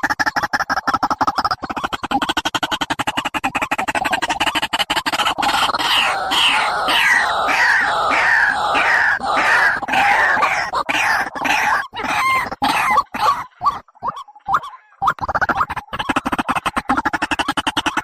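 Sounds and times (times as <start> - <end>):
bird downward-slurred calls: 4.4 - 14.9.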